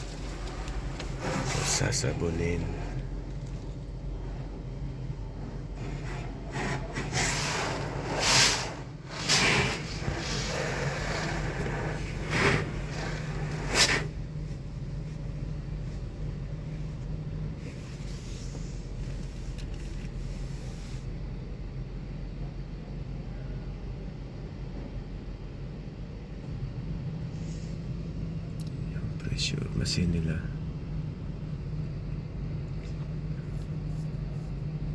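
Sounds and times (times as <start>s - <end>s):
hissing spray bursts: 6.5s - 14.1s.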